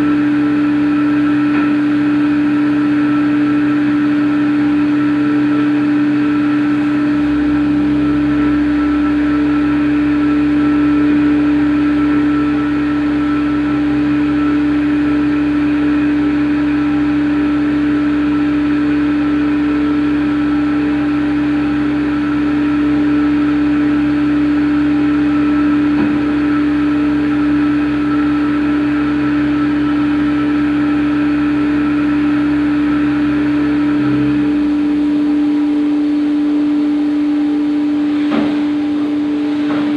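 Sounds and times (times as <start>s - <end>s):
machine motor hum: 0.0s - 39.9s.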